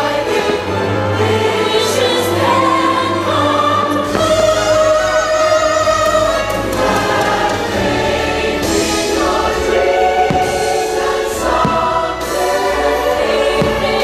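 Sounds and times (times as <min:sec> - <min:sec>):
choir singing with music: 0:00.0 - 0:14.0
short thumps: 0:10.2 - 0:12.3.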